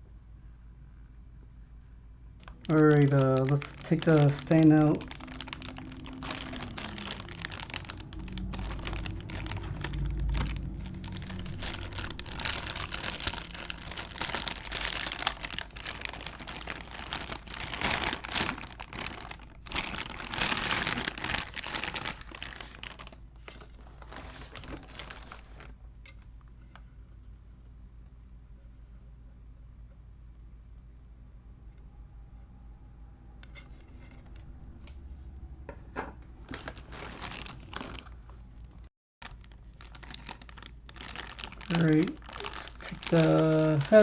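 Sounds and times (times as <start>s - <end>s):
plastic packaging crinkling: 2.4s - 26.3s, 36.4s - 44.0s.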